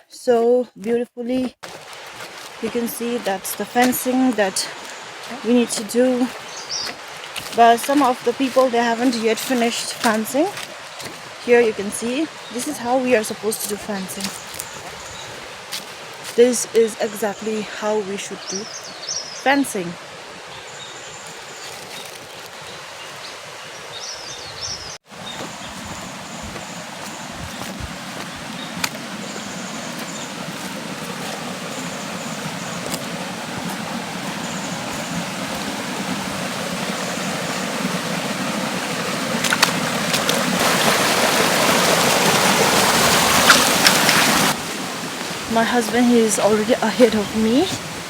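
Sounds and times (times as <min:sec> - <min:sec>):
mountain stream rushing: 0:01.6 - 0:48.0.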